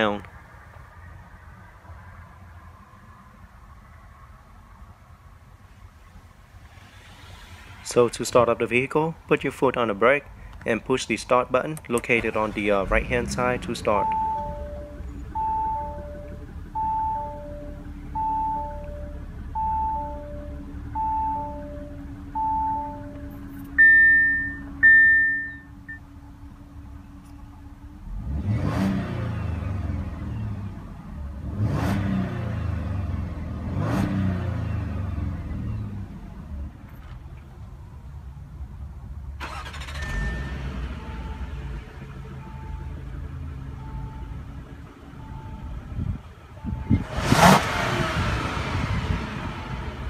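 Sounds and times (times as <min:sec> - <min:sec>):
car engine cranking and starting: 0:11.7 - 0:37.4, 0:39.4 - 0:50.0
dashboard chime beeping: 0:13.9 - 0:26.1
higher single chimes: 0:22.6 - 0:26.0.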